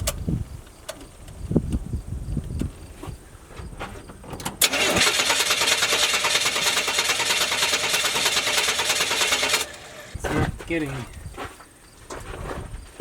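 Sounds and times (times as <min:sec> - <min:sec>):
truck engine cranking: 0:04.2 - 0:10.6.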